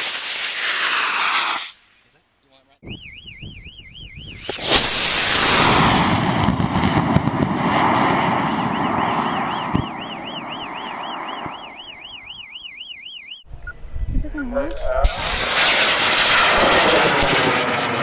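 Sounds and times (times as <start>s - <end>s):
warbling electronic siren tone: 2.8s - 6.1s, 7.8s - 13.5s
rocket motor roaring: 4.4s - 11.3s.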